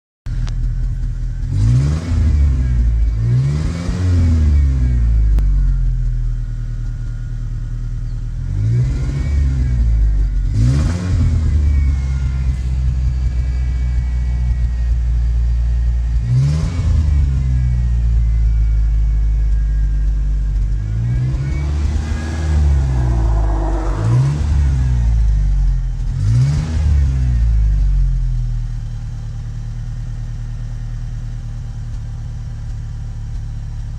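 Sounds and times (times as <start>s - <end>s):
rough car engine idle: 0.3s - 1.6s, 4.8s - 8.7s, 11.3s - 16.3s, 17.1s - 33.9s.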